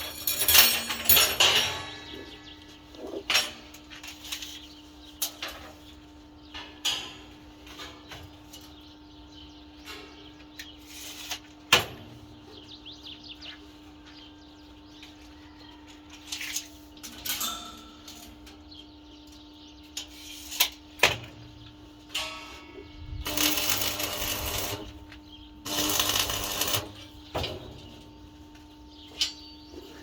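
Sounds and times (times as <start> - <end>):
sharp metal clanks: 0.0 - 2.6, 22.1 - 24.9.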